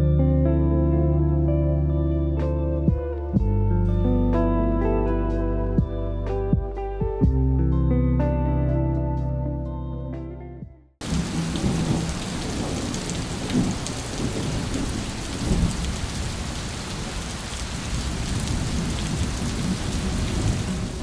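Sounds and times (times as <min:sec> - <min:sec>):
background music: 0:00.0 - 0:10.8
heavy rain pouring: 0:11.0 - 0:21.0.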